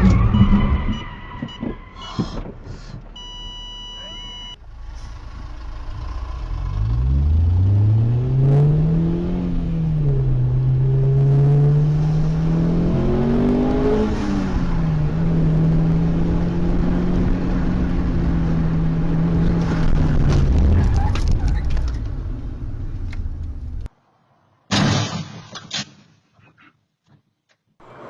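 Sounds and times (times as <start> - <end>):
short electronic beep: 0.0 - 1.7, 3.2 - 4.6
car engine accelerating: 4.6 - 23.9.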